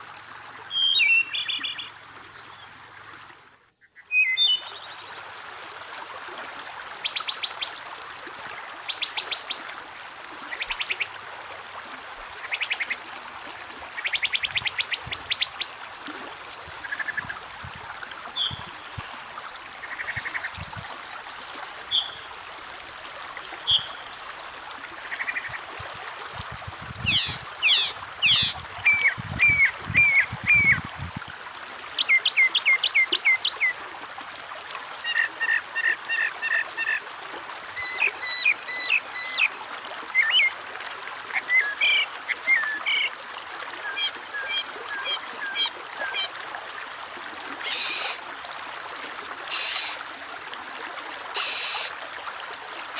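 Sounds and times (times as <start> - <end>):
water trickling: 0.0 - 52.9
songbirds singing: 0.7 - 2.7, 27.0 - 30.9.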